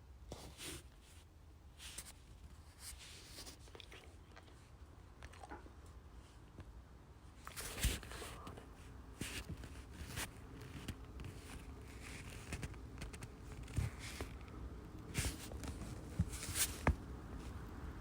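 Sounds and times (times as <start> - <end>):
low steady hum: 0.0 - 18.0
short rustles: 15.1 - 17.6.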